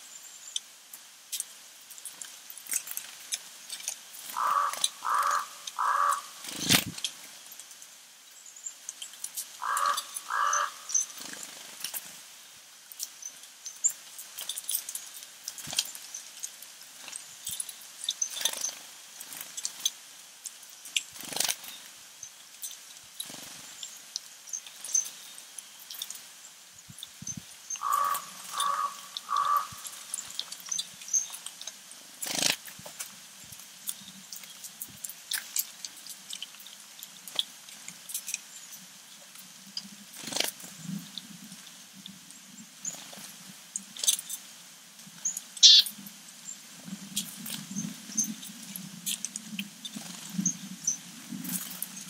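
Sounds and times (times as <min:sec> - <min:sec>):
small birds chirping: 0:00.0 - 0:12.3, 0:12.9 - 0:52.0.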